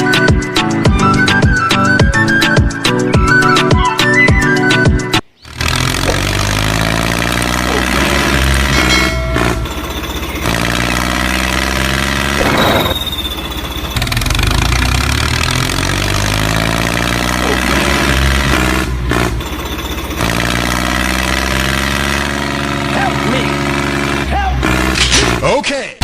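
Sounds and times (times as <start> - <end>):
tractor engine running: 5.2 - 25.6.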